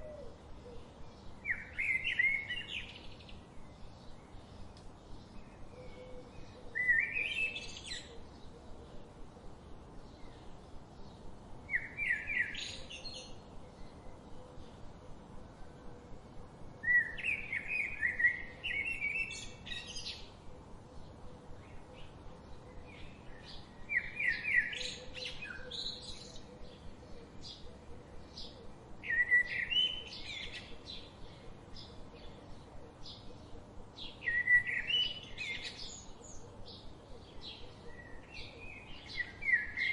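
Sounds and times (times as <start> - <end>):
faint bird chirps: 0.0 - 9.2, 16.8 - 39.9
songbird singing rising notes: 0.0 - 16.0, 16.8 - 39.9.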